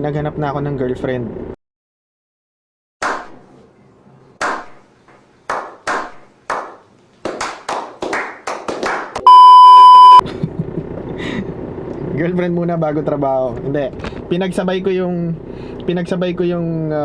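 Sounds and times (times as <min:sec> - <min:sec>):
hand claps: 0:05.5 - 0:09.2
steady beep tone: 0:09.3 - 0:10.2.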